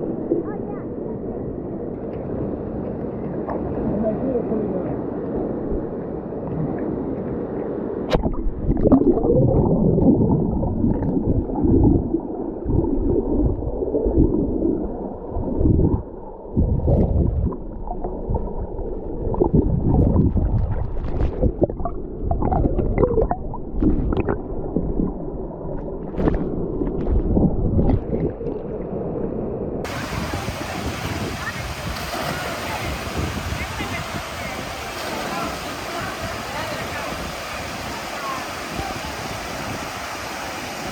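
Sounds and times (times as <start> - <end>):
gurgling rush of water: 0.0 - 7.5, 8.1 - 28.7, 29.8 - 40.9
sharp water splashes: 29.9 - 40.9.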